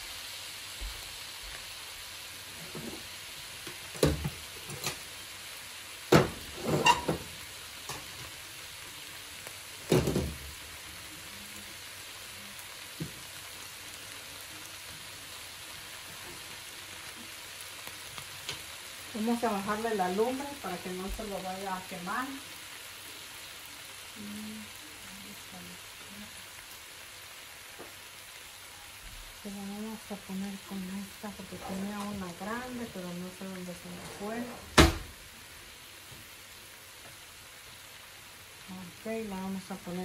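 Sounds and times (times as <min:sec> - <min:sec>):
food sizzling in a pot: 0:00.0 - 0:40.0
cookware clattering: 0:06.6 - 0:07.3.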